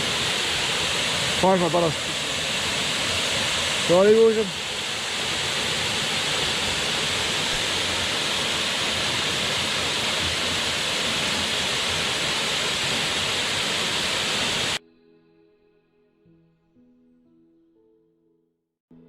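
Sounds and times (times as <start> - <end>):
waterfall rushing over rocks: 0.0 - 14.8.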